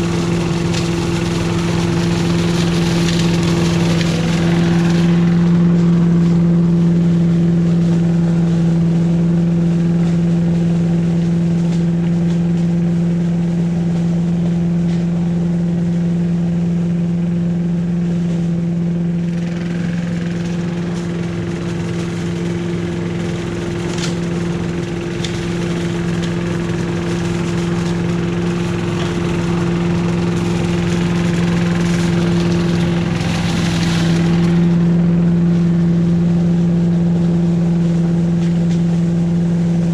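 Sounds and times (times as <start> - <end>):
leaf vacuum engine running: 0.0 - 39.9.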